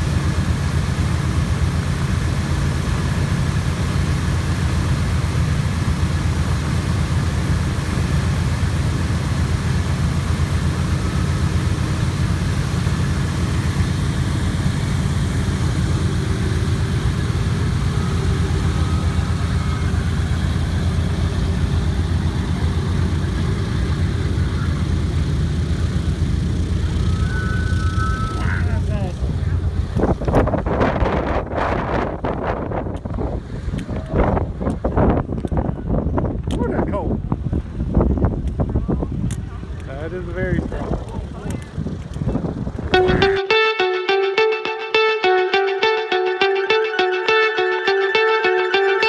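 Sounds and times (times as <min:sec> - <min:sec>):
radial engines running at low power: 0:00.0 - 0:30.0.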